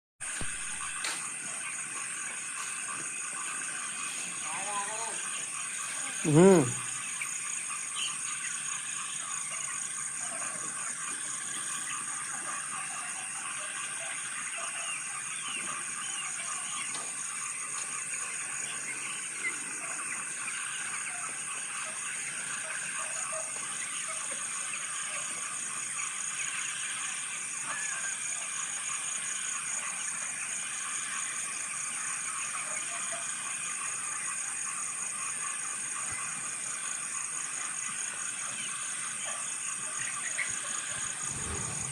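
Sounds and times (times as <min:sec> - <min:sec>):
chicks peeping and chirping: 0:00.4 - 0:41.9
high-pitched pulsing buzz: 0:41.0 - 0:41.9.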